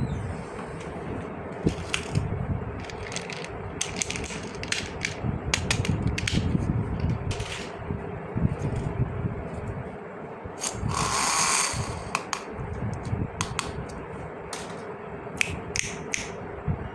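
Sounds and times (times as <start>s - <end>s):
plastic toy pieces clicking: 2.8s - 6.4s.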